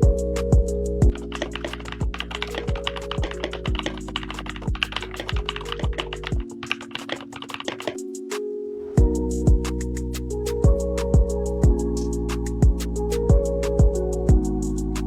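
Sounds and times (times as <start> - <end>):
background music with steady beat: 0.0 - 15.0
mechanical keyboard typing: 1.1 - 8.1.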